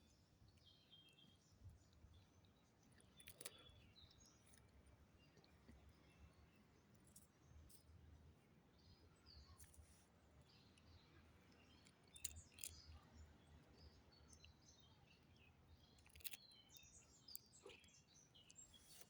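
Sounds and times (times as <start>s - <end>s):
faint bird chirps: 8.7s - 19.0s.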